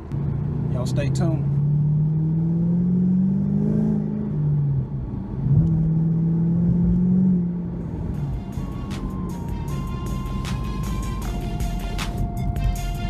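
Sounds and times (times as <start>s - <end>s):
car engine accelerating: 0.0s - 12.5s.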